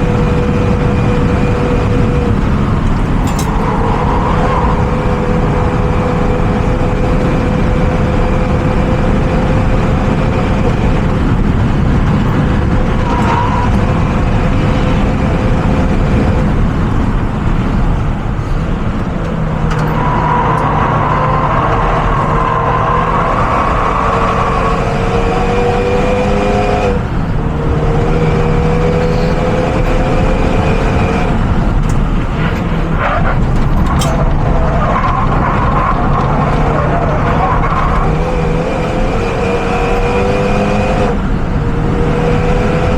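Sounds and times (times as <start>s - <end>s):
car engine running hard: 0.0s - 42.9s
wind noise: 0.0s - 42.9s.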